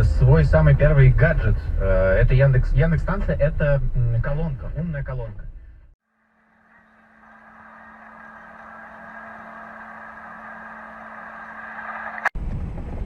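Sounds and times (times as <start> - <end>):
car driving: 0.0 - 13.0
constant low hum: 0.0 - 13.0.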